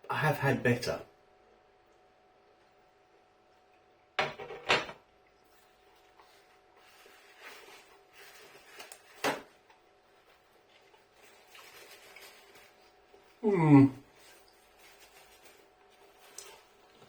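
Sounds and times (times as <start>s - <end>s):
soft rustling: 5.5s - 13.4s, 14.1s - 17.0s.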